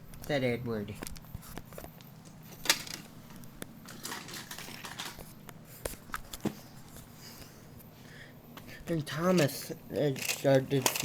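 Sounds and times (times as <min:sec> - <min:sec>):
plastic toy trains clicking: 0:02.6 - 0:03.0, 0:03.9 - 0:05.2, 0:09.4 - 0:11.0.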